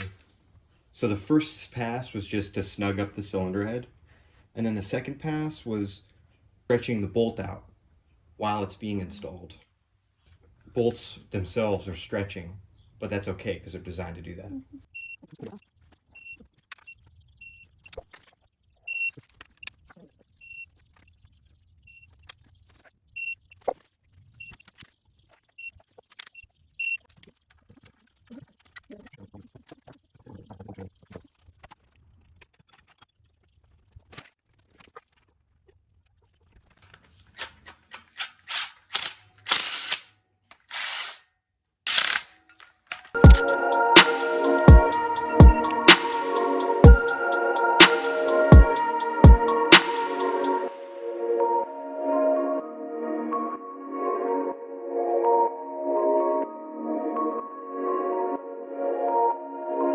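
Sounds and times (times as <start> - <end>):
music: 43.2 - 59.9.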